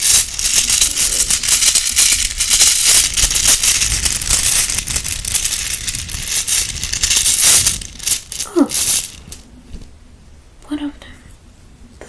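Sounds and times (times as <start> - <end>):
small bones rattling and clicking: 0.0 - 9.4.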